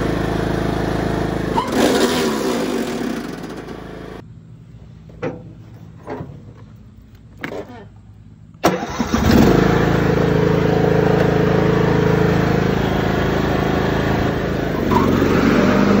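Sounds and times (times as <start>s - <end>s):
riding lawn mower engine starting: 0.0s - 4.2s, 8.6s - 16.0s.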